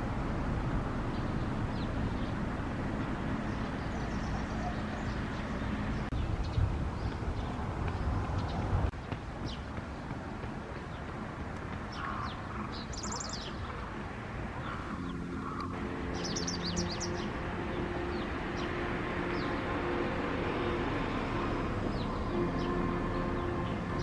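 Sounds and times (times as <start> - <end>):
low hum: 0.0 - 8.3, 12.1 - 24.0
wagtail chirping: 0.9 - 6.3, 11.9 - 24.0.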